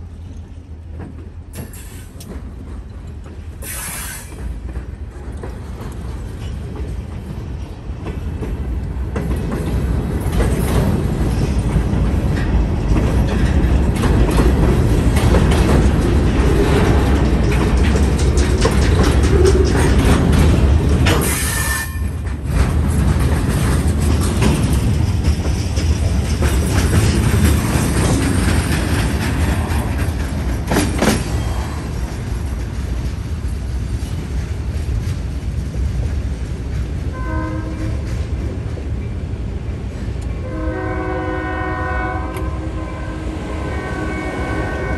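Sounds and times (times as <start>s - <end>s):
freight train cars rumbling: 0.0s - 44.9s
wheel clatter: 8.0s - 37.1s
train horn blasts: 37.1s - 38.1s, 40.4s - 44.9s.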